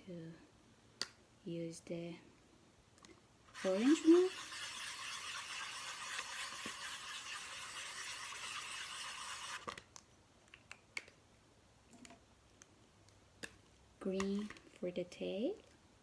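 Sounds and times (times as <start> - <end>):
scratchy scribbling on paper plate: 3.5 - 9.7.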